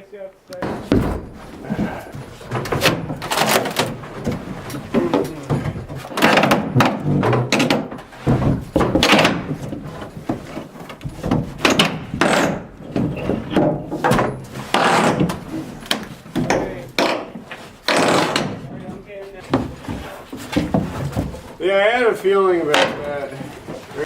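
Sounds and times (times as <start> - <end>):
wood knocking and clunking: 0.5 - 21.6, 22.6 - 24.0.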